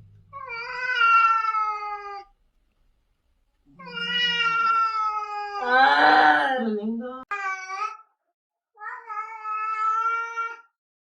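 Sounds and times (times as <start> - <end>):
cat meowing: 0.3 - 2.3, 3.8 - 6.3, 8.8 - 10.7.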